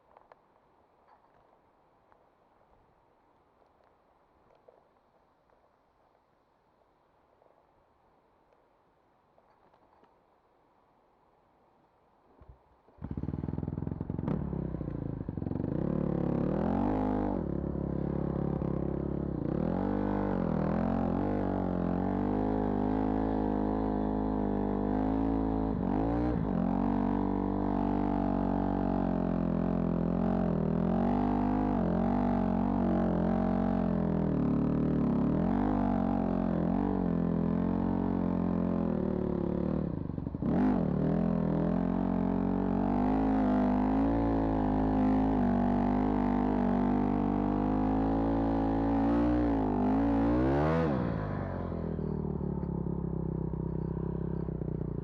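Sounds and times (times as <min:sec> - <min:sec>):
vehicle engine starting and revving: 0:13.0 - 0:18.7
vehicle engine running: 0:13.0 - 0:55.0.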